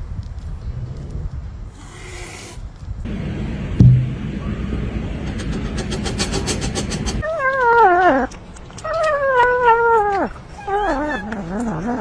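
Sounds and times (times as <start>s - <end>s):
rumbling noise with rapid clicks: 3.1s - 7.2s
cat yowling: 8.9s - 11.7s.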